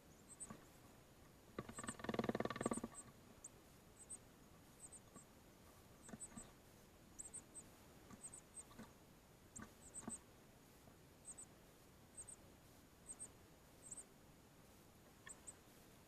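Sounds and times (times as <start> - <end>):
young songbird chirping: 0.0 - 0.8, 1.6 - 5.3, 5.9 - 8.9, 9.5 - 10.3, 11.2 - 11.5, 12.1 - 14.2, 15.2 - 15.6.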